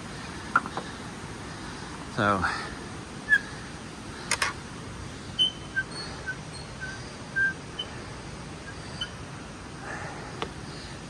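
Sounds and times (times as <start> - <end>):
faint hiss: 0.0 - 11.0
high bird chirps: 5.4 - 8.0, 8.6 - 9.2.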